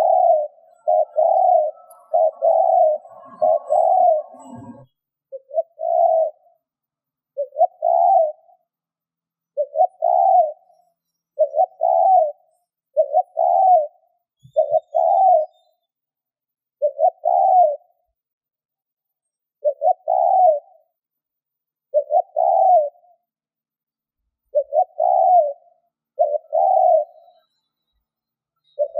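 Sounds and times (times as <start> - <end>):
dove cooing: 0.0 - 6.6, 7.4 - 8.6, 9.6 - 10.7, 11.4 - 15.6, 16.8 - 17.9, 19.6 - 20.8, 21.9 - 23.1, 24.5 - 27.4.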